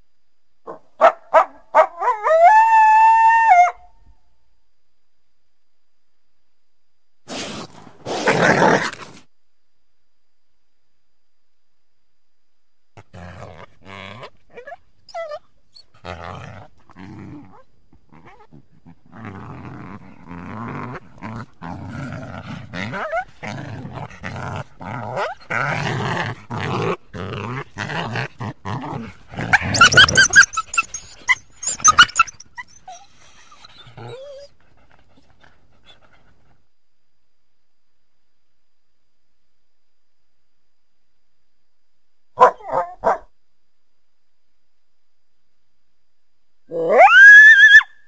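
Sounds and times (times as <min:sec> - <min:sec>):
coyote growling and barking: 0:00.6 - 0:03.9, 0:07.3 - 0:09.3, 0:13.0 - 0:36.6, 0:42.4 - 0:43.3, 0:46.7 - 0:48.0
coyote high-pitched yips: 0:29.7 - 0:33.0, 0:46.7 - 0:48.0.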